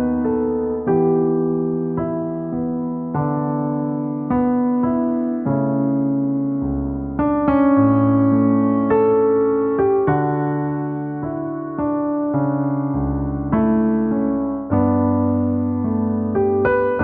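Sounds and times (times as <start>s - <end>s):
slow electric piano chords: 0.0s - 17.0s.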